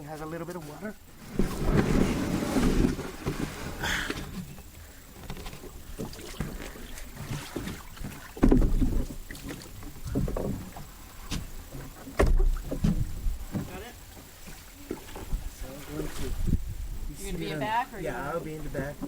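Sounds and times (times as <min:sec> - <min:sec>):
canoe knocking and bumping: 0:05.2 - 0:15.4.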